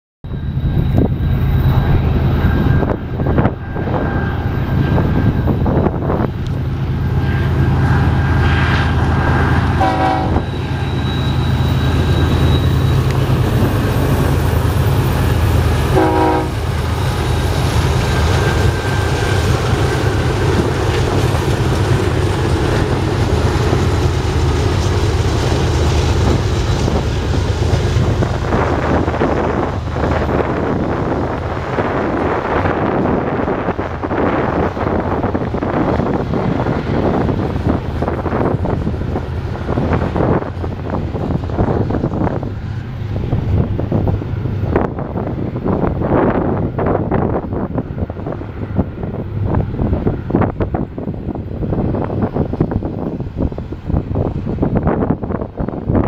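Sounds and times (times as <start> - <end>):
locomotive engines droning: 0.2 - 56.0
wheels rumbling on rail: 0.2 - 56.0
train horn: 8.2 - 11.4, 15.8 - 16.8.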